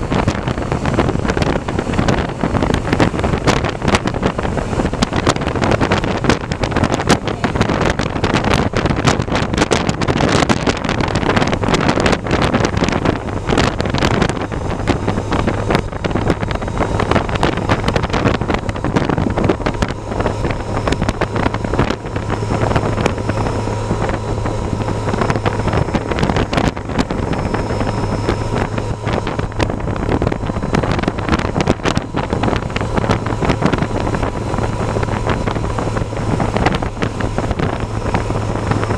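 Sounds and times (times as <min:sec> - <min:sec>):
steady low drone: 0:00.0 - 0:38.9
wind buffeting microphone: 0:00.0 - 0:38.9.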